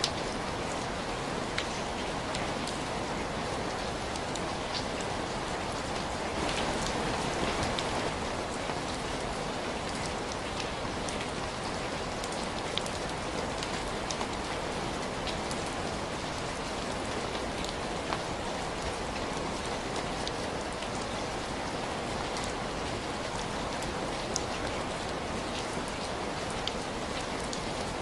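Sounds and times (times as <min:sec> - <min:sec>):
steady rain hiss: 0:00.0 - 0:28.0
raindrop ticks: 0:01.5 - 0:02.8, 0:06.4 - 0:08.0.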